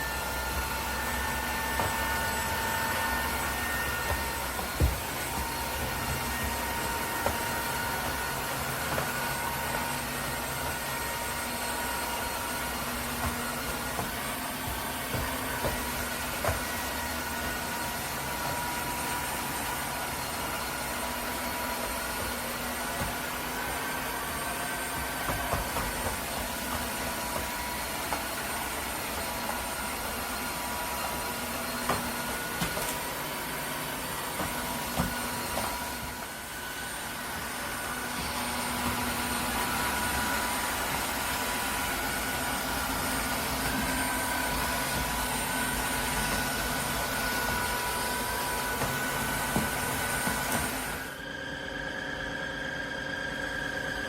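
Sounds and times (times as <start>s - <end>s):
vacuum mop motor whine: 0.0s - 54.0s.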